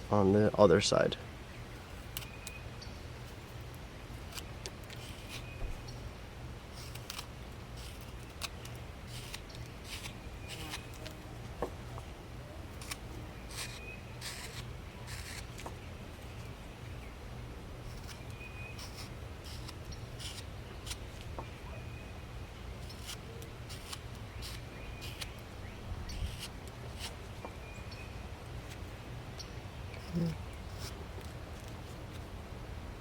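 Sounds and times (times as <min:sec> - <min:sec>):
knife scraping wood: 0:04.2 - 0:05.9, 0:06.7 - 0:11.2, 0:12.7 - 0:15.7, 0:17.8 - 0:21.3, 0:22.8 - 0:25.4, 0:26.0 - 0:27.3, 0:30.0 - 0:32.2.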